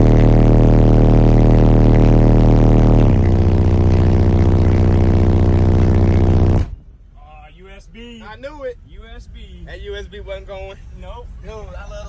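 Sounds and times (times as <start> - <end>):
subwoofers playing deep bass: 0.0 - 6.9.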